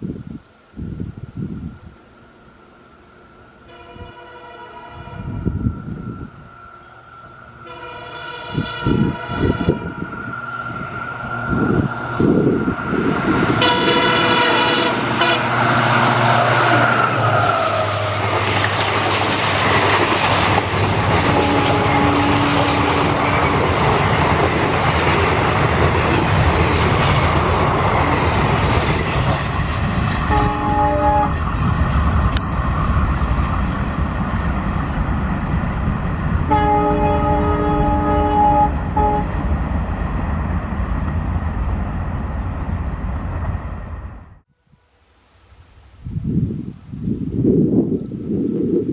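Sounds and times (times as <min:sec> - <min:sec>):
train horn blasts: 0:03.6 - 0:10.8, 0:13.5 - 0:18.2, 0:21.2 - 0:23.6, 0:30.3 - 0:31.4, 0:36.4 - 0:39.4
train wheels rattling on rail: 0:06.8 - 0:44.1.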